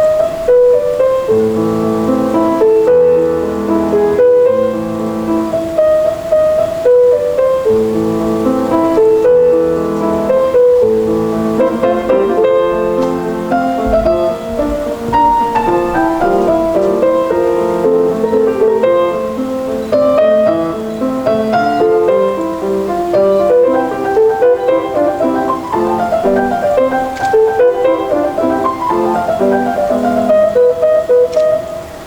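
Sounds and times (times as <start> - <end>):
solo classical piano: 0.0 - 32.0.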